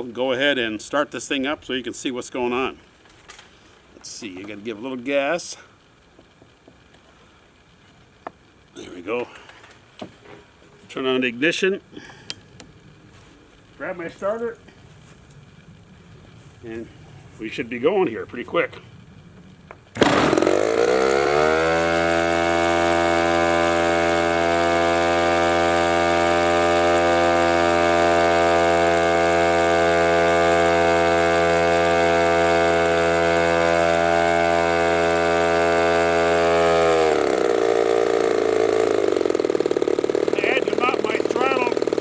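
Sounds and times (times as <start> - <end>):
two-stroke engine running: 19.1 - 42.0.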